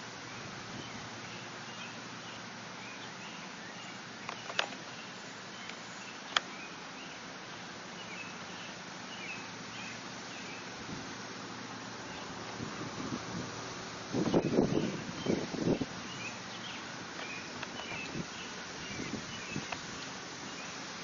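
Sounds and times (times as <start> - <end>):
background hiss: 0.0 - 21.0
sharp clicks: 4.2 - 4.8.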